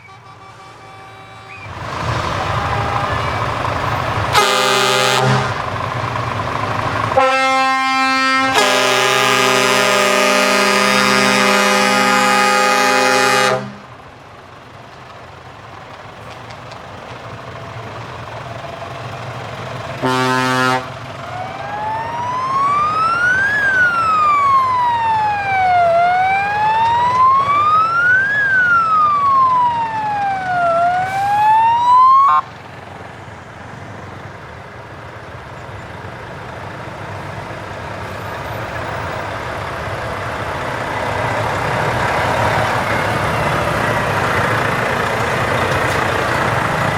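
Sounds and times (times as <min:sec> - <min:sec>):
truck air horn blasts: 0:00.0 - 0:01.8, 0:02.4 - 0:05.7, 0:07.2 - 0:14.0, 0:20.0 - 0:21.1
truck engine approaching: 0:00.0 - 0:46.9
siren wailing: 0:02.2 - 0:05.5, 0:21.2 - 0:32.5.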